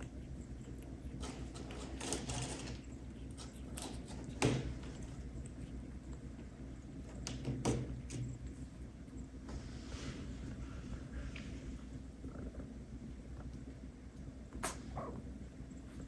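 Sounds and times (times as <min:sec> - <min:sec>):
steady low hum: 0:00.0 - 0:16.0
kittens rustling and knocking: 0:07.0 - 0:08.5.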